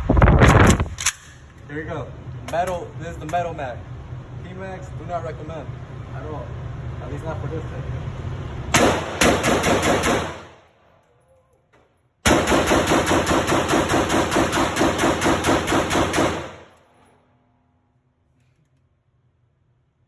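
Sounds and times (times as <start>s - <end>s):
gunshot echo: 8.8s - 10.6s
rifle firing rapidly: 8.8s - 10.6s, 12.2s - 16.7s.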